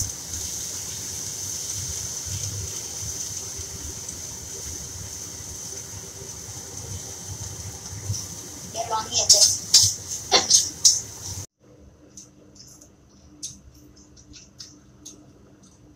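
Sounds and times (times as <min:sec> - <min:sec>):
sauce sizzling in hot oil: 0:00.0 - 0:11.5.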